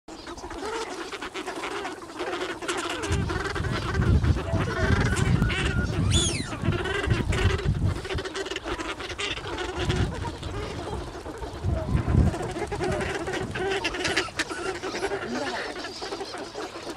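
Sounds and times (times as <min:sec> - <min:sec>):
waterfowl honking and quacking: 0:00.1 - 0:16.9
high rising and falling bird call: 0:05.0 - 0:06.6.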